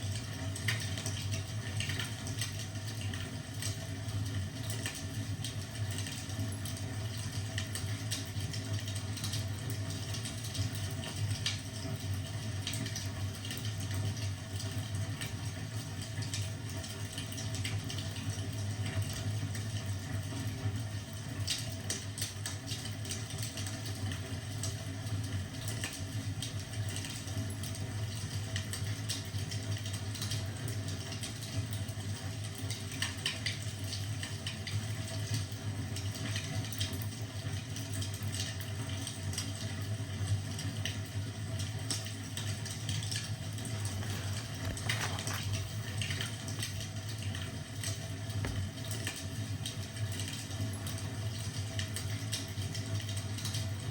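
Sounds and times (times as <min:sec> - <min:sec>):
wood fire crackling: 0:41.2 - 0:52.1.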